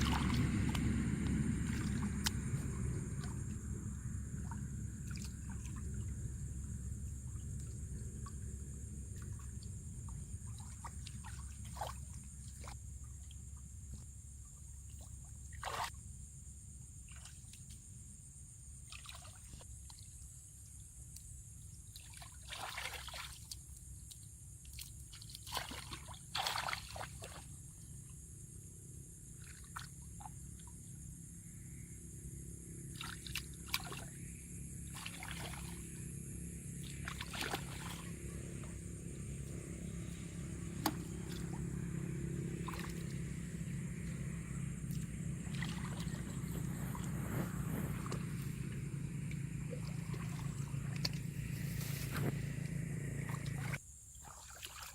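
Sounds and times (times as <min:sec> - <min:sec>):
water sloshing and splashing: 0:00.0 - 0:16.1, 0:16.9 - 0:18.0, 0:18.7 - 0:20.6, 0:21.8 - 0:31.2, 0:32.7 - 0:54.9
low steady hum: 0:00.0 - 0:17.0, 0:27.2 - 0:53.9.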